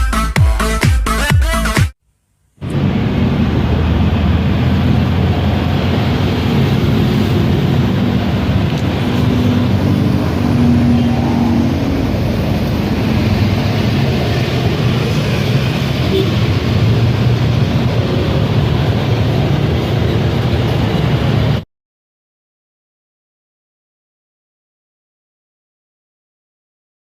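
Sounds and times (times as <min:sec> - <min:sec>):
vehicle engine rumbling: 0:02.6 - 0:21.6.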